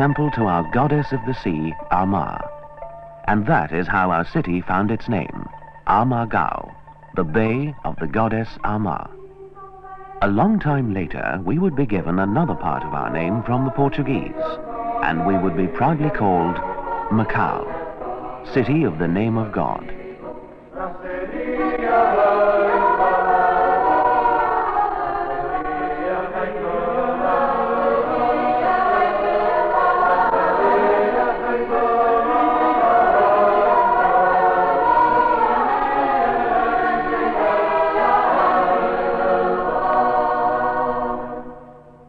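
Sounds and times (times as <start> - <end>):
choir singing: 3.3 - 42.0.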